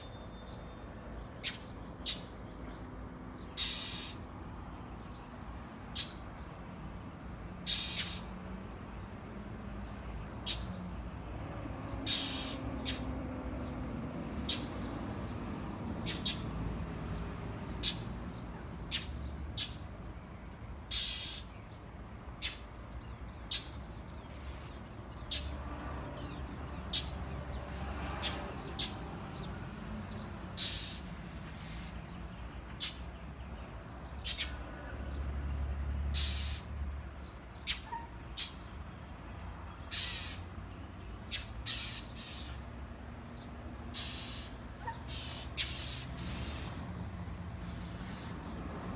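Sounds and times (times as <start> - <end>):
birds calling: 0.0 - 6.6, 7.6 - 9.1, 9.7 - 10.9, 11.5 - 16.7, 17.5 - 20.0, 20.8 - 46.8.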